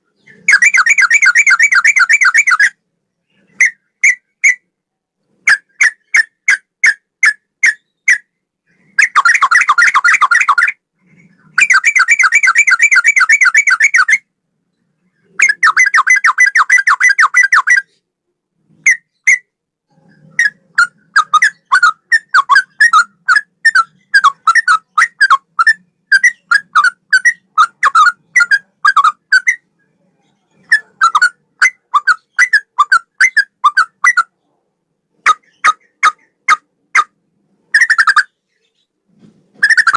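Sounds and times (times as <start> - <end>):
bulbul song whistled notes and trills: 0.2 - 2.8, 8.9 - 10.8, 11.5 - 14.3, 15.2 - 18.0, 20.2 - 29.7.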